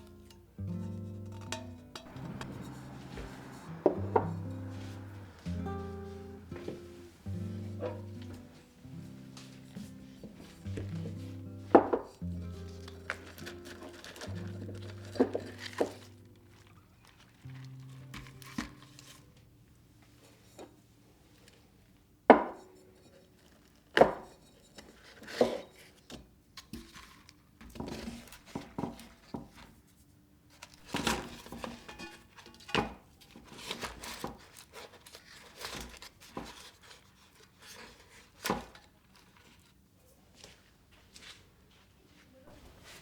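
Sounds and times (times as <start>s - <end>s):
kitchenware clattering on counter: 1.3s - 5.4s, 30.8s - 34.4s.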